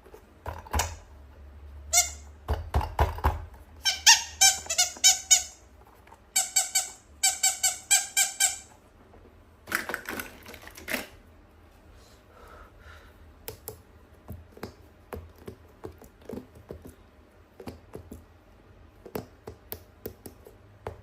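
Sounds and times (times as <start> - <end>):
toy squeaking: 1.9 - 2.3, 3.8 - 5.6, 6.3 - 8.8.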